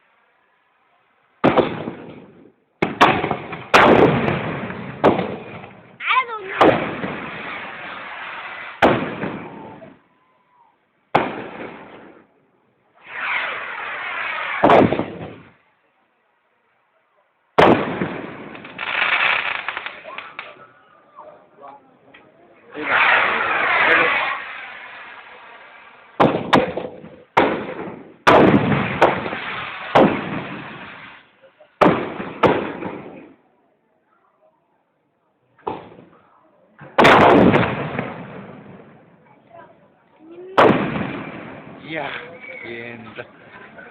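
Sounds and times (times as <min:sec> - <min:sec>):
fireworks bangs: 0:01.4 - 0:10.1, 0:11.1 - 0:15.7, 0:17.6 - 0:20.6, 0:22.6 - 0:33.5, 0:35.6 - 0:36.2, 0:36.8 - 0:39.8, 0:40.4 - 0:43.9
fireworks crackling: 0:01.4 - 0:10.1, 0:11.1 - 0:15.7, 0:17.6 - 0:20.7, 0:22.6 - 0:33.5, 0:36.8 - 0:43.9
rushing hiss: 0:22.7 - 0:26.0.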